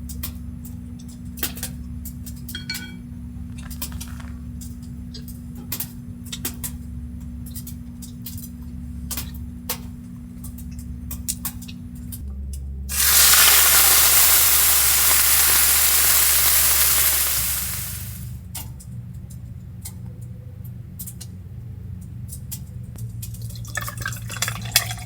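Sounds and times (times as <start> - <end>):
small hard objects clinking: 12.9 - 18.3.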